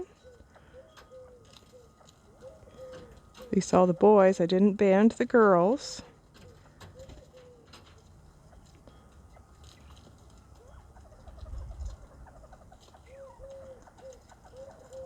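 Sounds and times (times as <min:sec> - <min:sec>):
quail calling softly: 0:00.0 - 0:03.6, 0:09.3 - 0:15.0.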